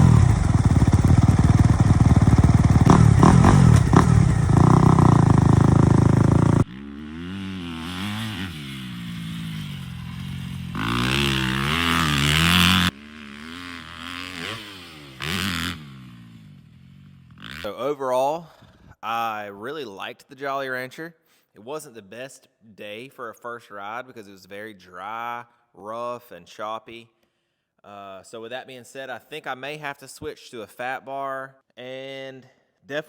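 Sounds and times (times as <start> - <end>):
dirt bike engine revving: 0.0 - 17.7.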